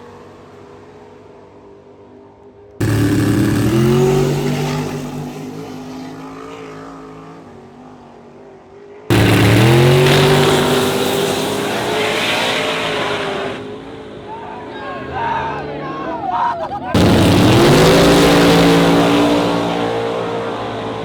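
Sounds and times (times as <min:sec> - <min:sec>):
faint engine running steadily: 0:00.0 - 0:16.3, 0:16.9 - 0:21.0
race car engines launching: 0:02.8 - 0:07.8, 0:09.1 - 0:15.8, 0:16.9 - 0:21.0.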